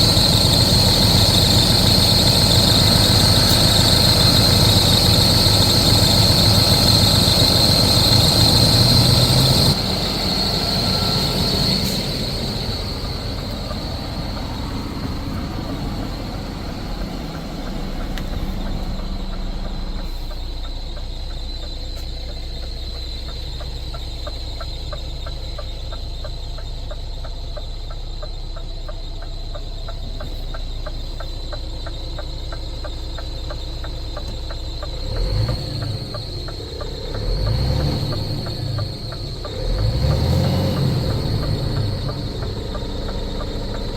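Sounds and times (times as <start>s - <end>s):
high engine whine: 0.0s - 43.9s
truck diesel engine idling: 0.0s - 43.9s
faint regular ticking: 11.2s - 43.9s.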